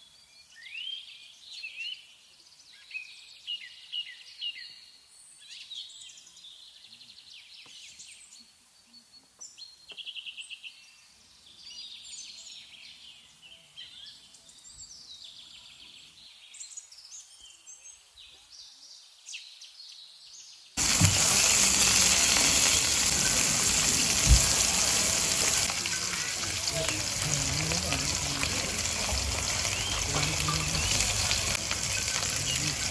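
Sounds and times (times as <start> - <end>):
small birds singing: 0.0 - 32.9
food sizzling in a pan: 20.8 - 32.9.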